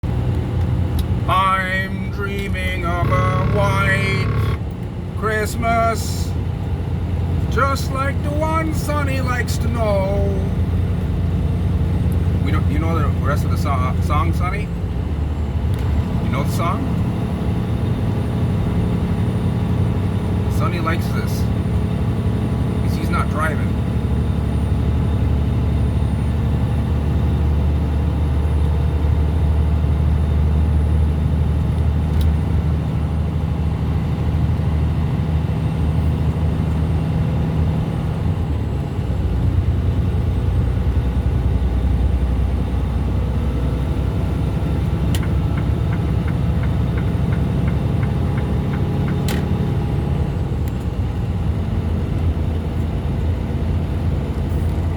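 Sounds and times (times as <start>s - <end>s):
road noise: 0.0s - 54.9s
truck engine: 0.0s - 54.9s
light regular ticking: 44.8s - 49.5s.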